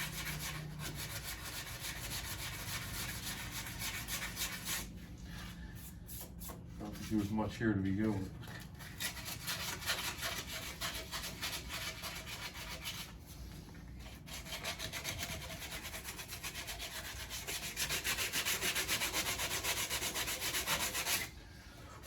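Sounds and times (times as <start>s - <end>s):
sandpaper rubbing on metal: 0.0s - 4.9s, 6.8s - 7.5s, 8.8s - 13.4s, 14.2s - 21.3s.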